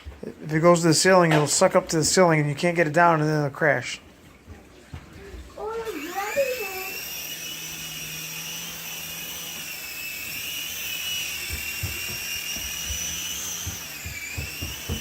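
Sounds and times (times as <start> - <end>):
toy helicopter rotors whining: 5.6 - 15.0.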